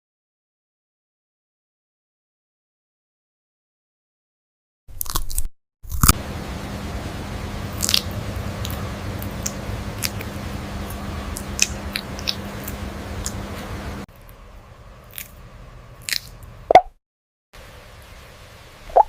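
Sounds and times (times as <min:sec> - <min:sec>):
parrot clicks and crunches: 0:05.0 - 0:06.2, 0:07.8 - 0:13.4, 0:16.0 - 0:16.5
steady low hum: 0:05.9 - 0:16.8, 0:17.6 - 0:19.0.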